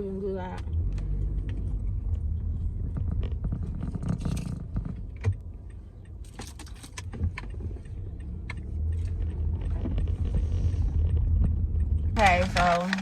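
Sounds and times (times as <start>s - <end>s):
car cabin rumble: 0.0s - 13.0s
paper bag rustling: 12.2s - 13.0s.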